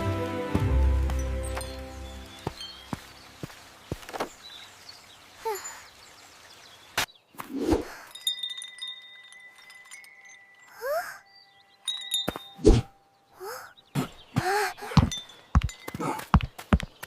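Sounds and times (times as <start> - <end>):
soft tinkling chimes: 1.0 - 3.5, 5.4 - 6.4, 7.9 - 13.9, 15.0 - 16.4
thin high ringing tones: 8.1 - 13.3.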